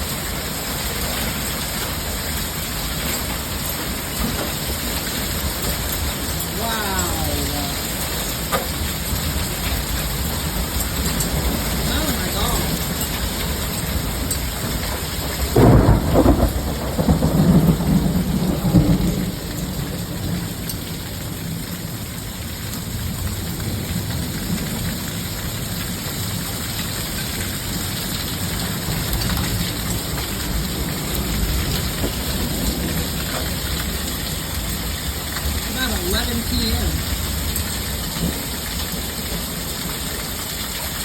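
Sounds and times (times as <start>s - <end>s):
steady rain: 0.0s - 41.0s
thunder clap rumbling: 7.7s - 20.7s.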